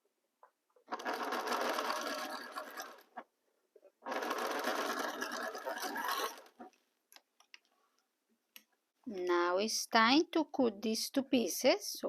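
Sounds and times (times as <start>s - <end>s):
sewing machine stitching: 0.9s - 3.2s, 4.0s - 6.8s.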